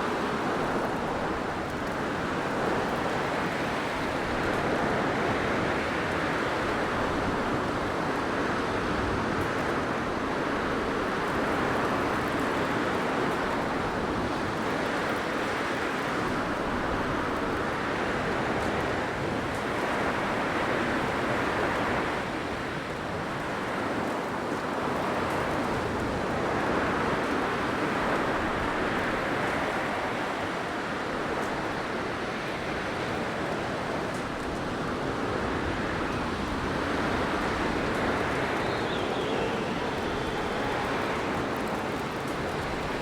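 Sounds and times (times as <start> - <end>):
blizzard wind blowing: 24.9 - 43.0.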